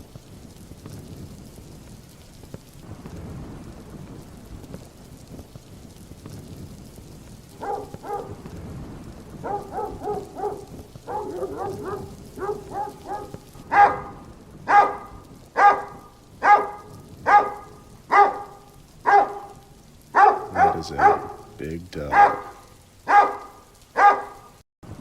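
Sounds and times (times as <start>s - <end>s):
large dog barking: 7.5s - 8.4s, 9.4s - 24.6s.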